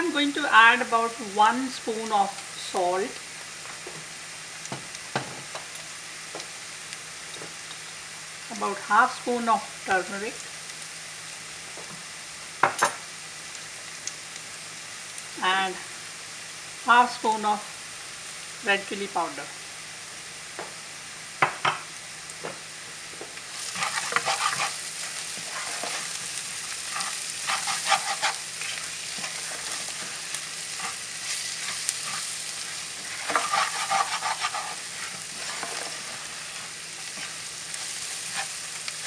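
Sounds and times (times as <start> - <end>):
food frying in a pan: 0.0 - 39.0
spoon stirring and scraping: 23.6 - 26.2, 26.8 - 39.0.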